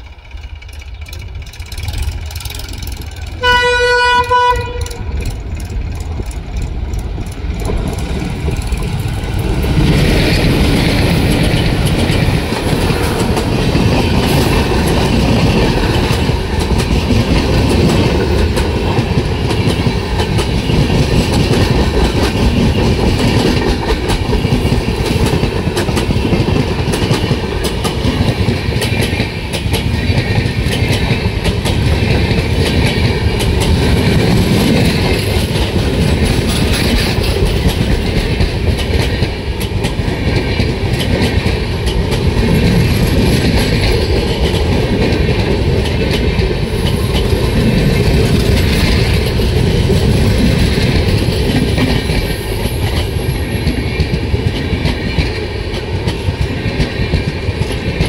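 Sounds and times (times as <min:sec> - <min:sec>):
wheels clacking on rails: 0:00.0 - 0:58.0
locomotive horn blast: 0:03.4 - 0:05.3.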